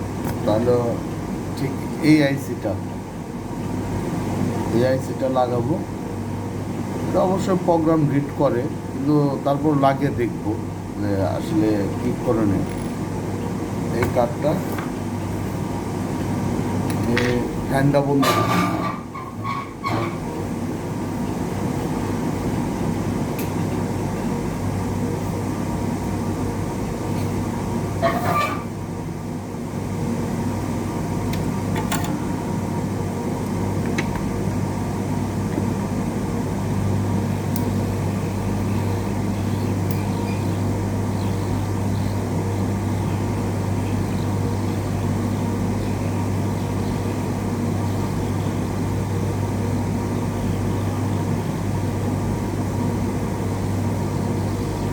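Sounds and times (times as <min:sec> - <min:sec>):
hot-air station blowing: 0:00.0 - 0:43.8.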